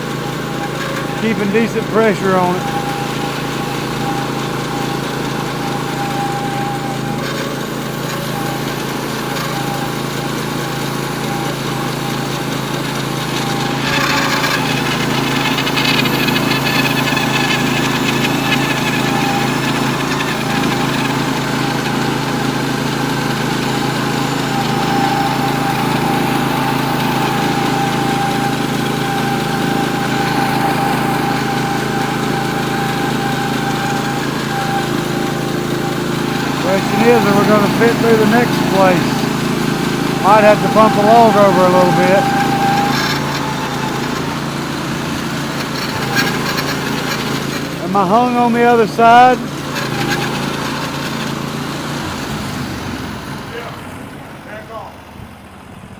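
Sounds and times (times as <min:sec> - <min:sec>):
band sawmill cutting log: 0:00.0 - 0:55.0.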